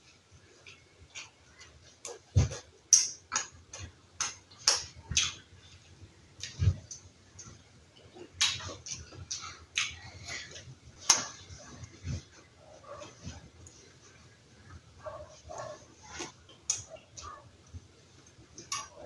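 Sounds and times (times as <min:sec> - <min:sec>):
chewing and lip-smacking: 0:00.6 - 0:12.3.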